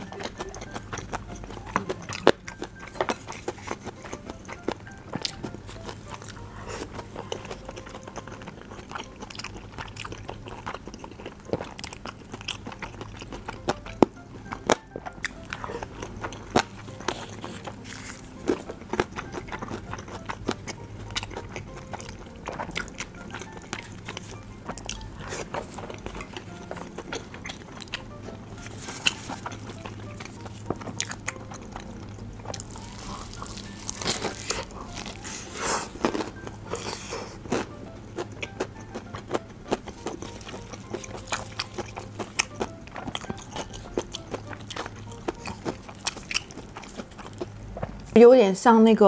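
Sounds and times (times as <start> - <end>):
close-up chewing: 0.0 - 48.2.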